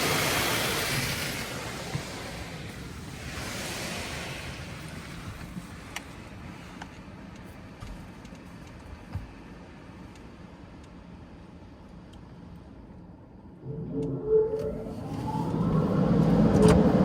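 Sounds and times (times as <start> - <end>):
car wash machinery hum: 0.0 - 17.0.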